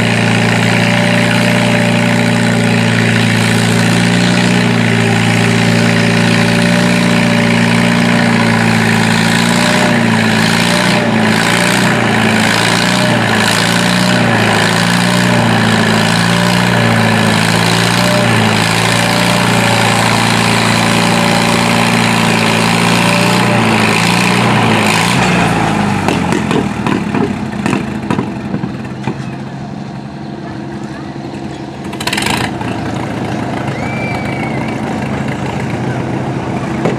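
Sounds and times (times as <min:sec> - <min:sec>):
tractor engine running: 0:00.0 - 0:36.9
knocks: 0:26.1 - 0:29.3.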